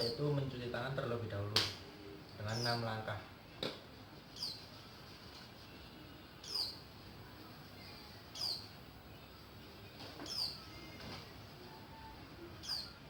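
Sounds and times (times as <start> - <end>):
bird chirping downward: 7.8 - 9.4, 10.2 - 11.0.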